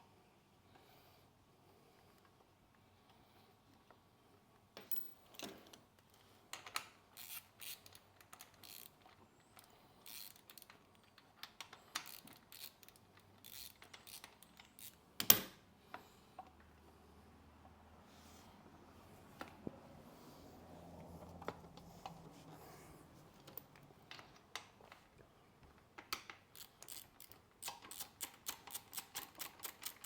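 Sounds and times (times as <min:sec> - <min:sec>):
metal tools clicking and scraping: 0:06.6 - 0:15.4, 0:26.5 - 0:30.0.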